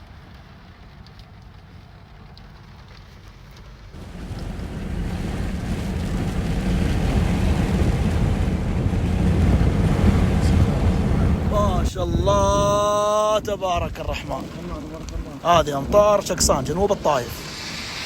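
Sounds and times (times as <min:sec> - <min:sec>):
heavy rain: 0:00.0 - 0:18.0
wind buffeting microphone: 0:03.9 - 0:18.0.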